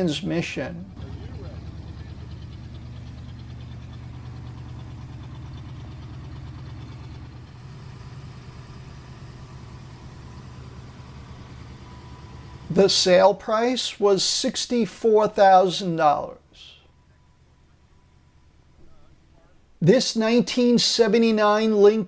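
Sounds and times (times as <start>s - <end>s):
car engine idling: 0.0s - 13.8s, 16.5s - 19.8s.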